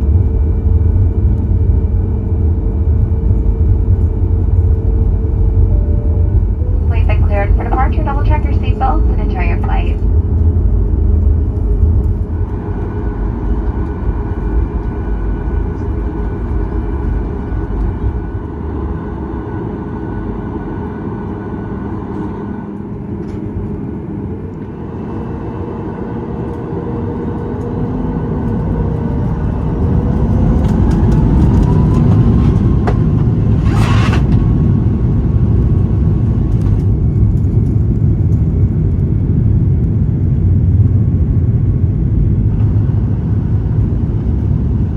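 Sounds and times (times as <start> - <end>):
jet engine rumble: 0.0 - 44.9
jet engines whining: 2.9 - 36.5.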